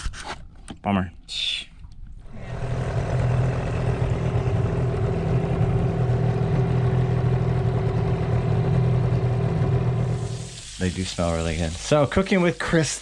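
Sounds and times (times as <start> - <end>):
outboard motor running: 2.3 - 10.5.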